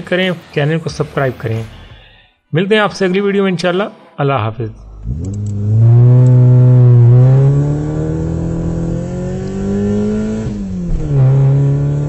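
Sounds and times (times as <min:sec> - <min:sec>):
car engine accelerating: 0:04.8 - 0:12.0.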